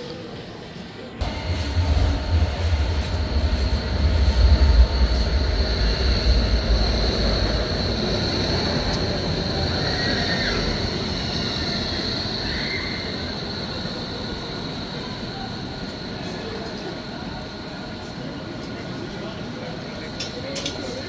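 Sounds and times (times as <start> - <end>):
faint squeal: 1.2 - 16.4
electric train rumble: 1.2 - 21.0
train high whine: 1.2 - 21.0.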